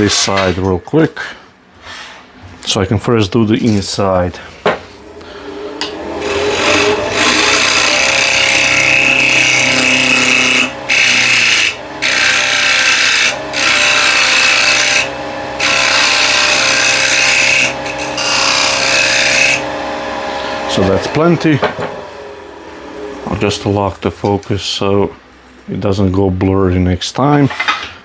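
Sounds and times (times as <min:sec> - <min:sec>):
wood lathe running: 0:05.0 - 0:23.8
gouge cutting spinning wood: 0:05.4 - 0:23.8.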